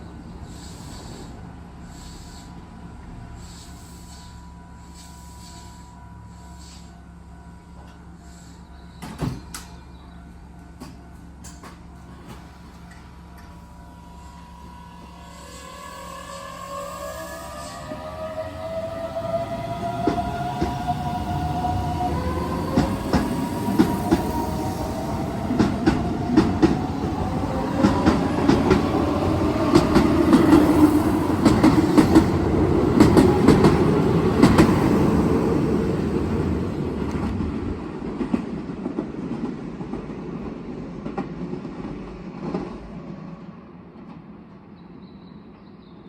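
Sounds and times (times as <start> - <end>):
electric train traction motors whining: 9.5 - 37.3
train wheels clacking over rail joints: 27.7 - 34.8.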